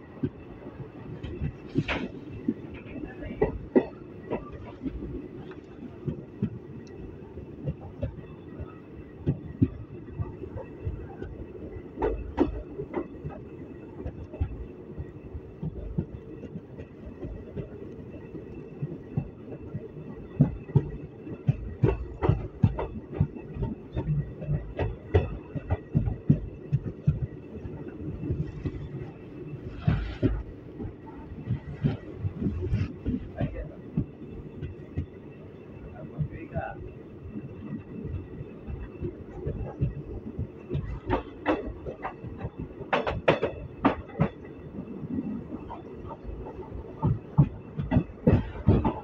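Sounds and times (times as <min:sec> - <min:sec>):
train coach rumbling on track: 0:00.0 - 0:49.0
wheels clacking and knocking: 0:20.3 - 0:35.2, 0:38.7 - 0:49.0.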